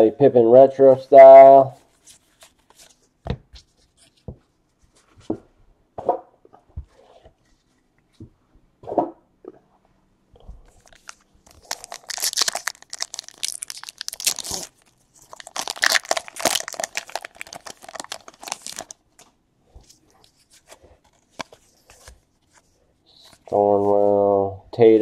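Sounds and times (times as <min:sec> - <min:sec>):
card pack wrappers tearing and crinkling: 0:10.8 - 0:19.3.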